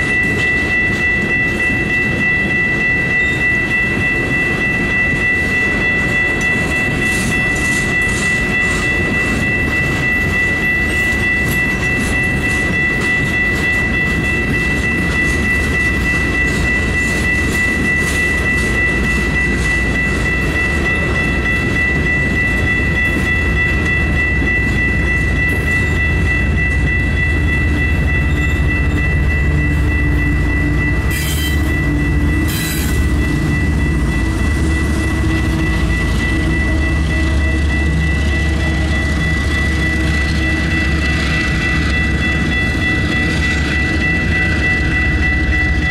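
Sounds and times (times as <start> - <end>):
freight train rumbling: 0.0 - 45.9
high-pitched whine: 0.0 - 45.9
wheels clickety-clack: 5.4 - 29.2.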